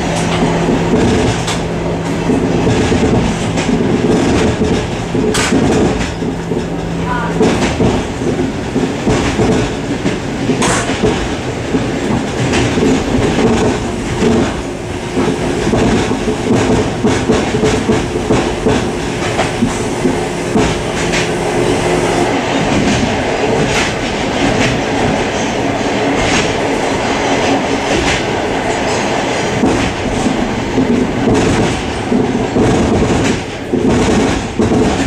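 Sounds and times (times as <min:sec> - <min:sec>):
train wheels rumbling and clicking: 0:00.0 - 0:35.0.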